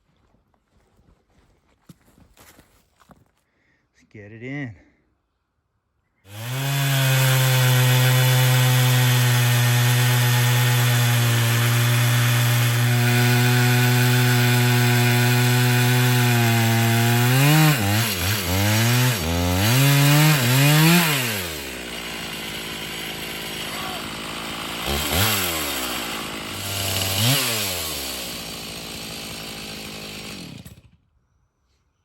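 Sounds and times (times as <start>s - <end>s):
chainsaw ripping a log: 6.3s - 31.1s.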